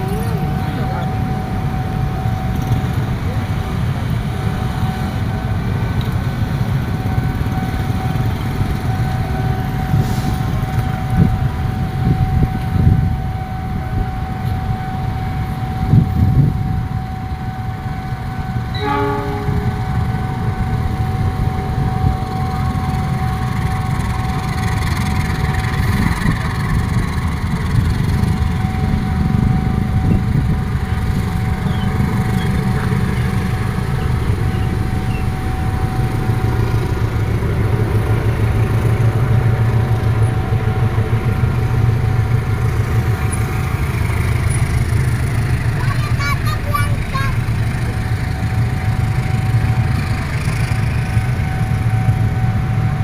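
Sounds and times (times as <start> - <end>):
thin steady whine: 0.0 - 53.0
train rumble: 0.0 - 53.0.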